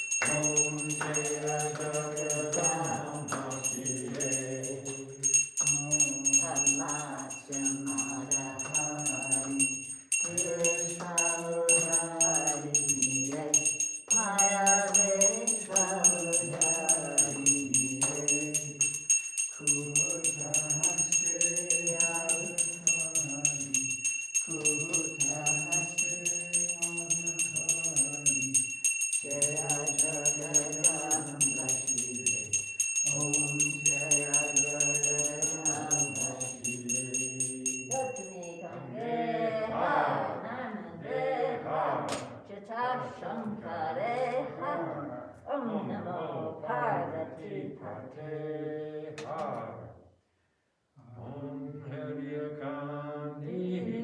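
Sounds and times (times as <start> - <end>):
small bell ringing rapidly: 0.0 - 38.8
voices singing a hymn: 0.0 - 50.0, 51.0 - 54.0.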